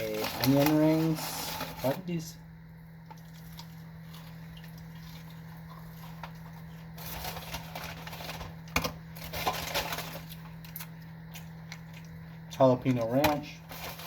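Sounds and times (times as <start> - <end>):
paper and plastic crinkling: 0.0 - 2.2, 5.0 - 12.2, 12.9 - 14.0
low electrical hum: 0.0 - 14.0.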